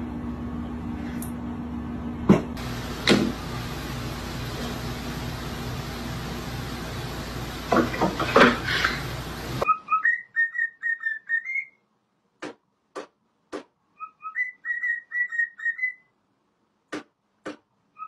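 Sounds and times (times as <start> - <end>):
steady hiss: 2.6 - 9.6
pet bird whistling: 9.6 - 11.8, 14.0 - 16.1.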